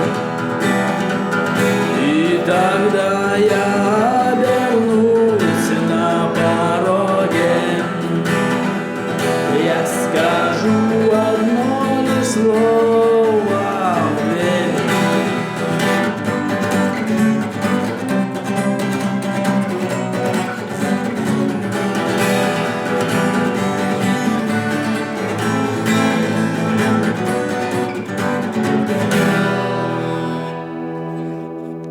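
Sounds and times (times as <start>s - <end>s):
twelve-string acoustic guitar strumming: 0.0s - 31.9s.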